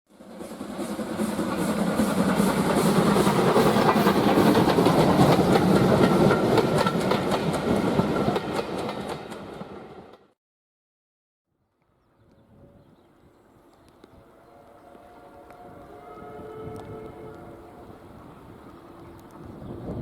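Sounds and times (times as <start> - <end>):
train wheels clattering over rail joints: 0.6 - 9.6.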